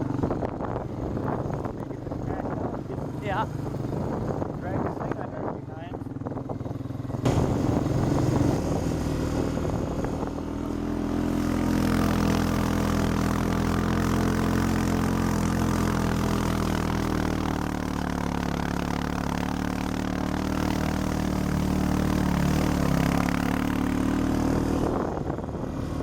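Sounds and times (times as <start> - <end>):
atv engine running under load: 0.0 - 26.0.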